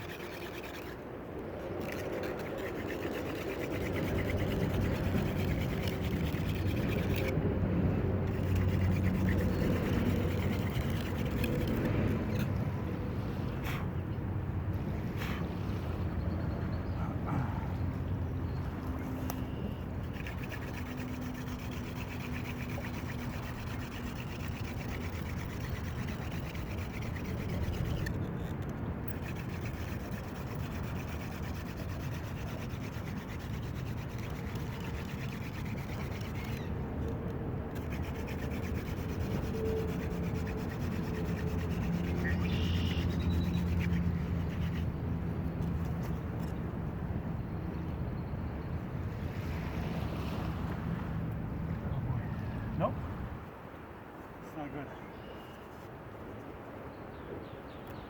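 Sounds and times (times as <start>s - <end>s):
wooden hand drill grinding: 0.0s - 1.0s, 1.8s - 7.4s, 8.3s - 12.5s, 20.0s - 36.7s, 37.7s - 44.9s.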